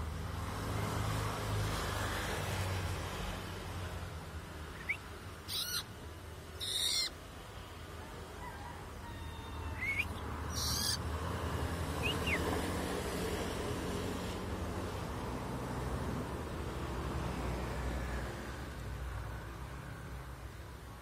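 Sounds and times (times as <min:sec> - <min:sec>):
shrike harsh calls: 0:04.8 - 0:05.9, 0:06.6 - 0:07.2, 0:09.2 - 0:11.0.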